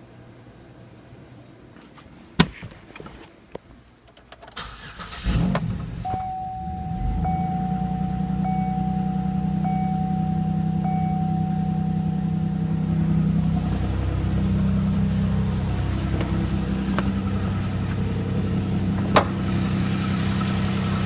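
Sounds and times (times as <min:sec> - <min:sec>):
car engine cranking and idling: 0:04.1 - 0:21.0
steady high tone: 0:06.0 - 0:21.0.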